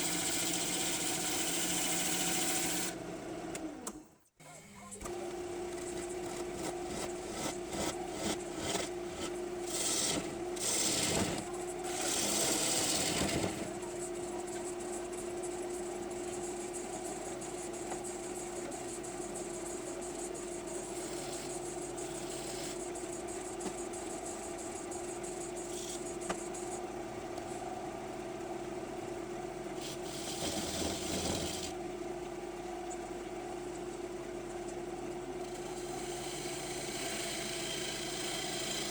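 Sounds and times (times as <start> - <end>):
gouge cutting wood: 0.0 - 2.9, 5.8 - 13.8, 21.0 - 22.8, 29.8 - 31.7, 35.5 - 38.9
lathe motor humming: 0.0 - 3.8, 5.1 - 26.8, 29.0 - 31.8, 35.1 - 38.9.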